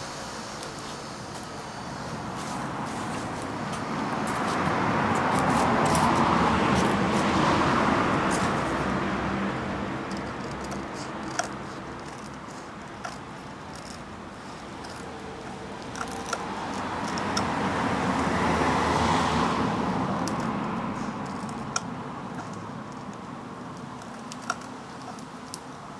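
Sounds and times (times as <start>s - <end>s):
small clicks: 10.1s - 18.4s.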